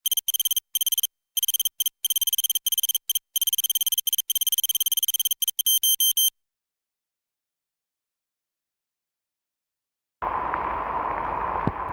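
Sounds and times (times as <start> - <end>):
stuttering electronic beeps: 0.0 - 6.3.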